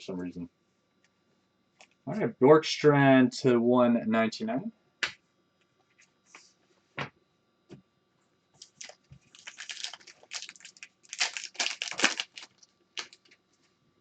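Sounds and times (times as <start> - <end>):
card packs crinkling and crackling: 8.6 - 13.4.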